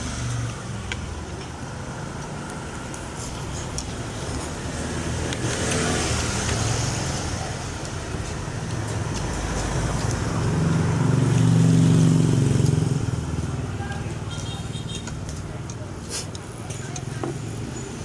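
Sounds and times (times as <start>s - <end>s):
tyre and road hiss: 0.0s - 18.0s
vehicle engine passing by: 4.2s - 14.2s.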